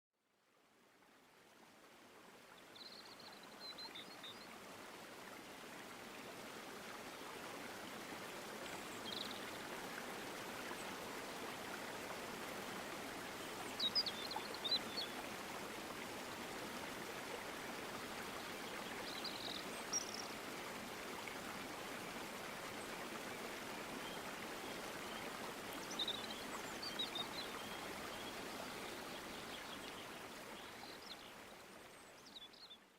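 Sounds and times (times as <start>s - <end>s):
stream water flowing: 0.4s - 32.9s.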